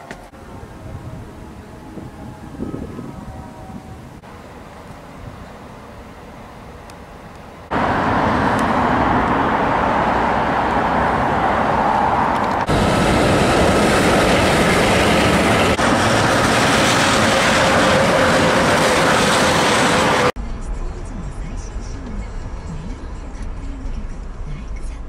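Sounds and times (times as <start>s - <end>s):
monorail train whine: 0.0s - 22.8s
train passing: 0.0s - 24.4s.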